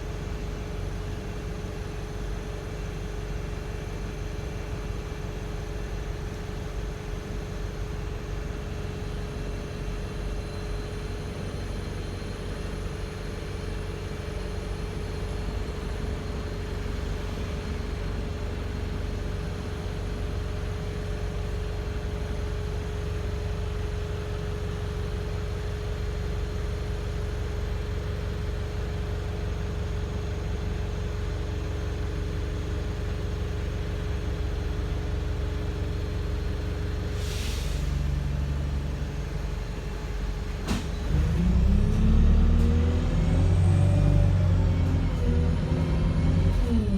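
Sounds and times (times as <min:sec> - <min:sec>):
bus engine droning: 0:05.3 - 0:46.9
lower whine: 0:41.0 - 0:46.9.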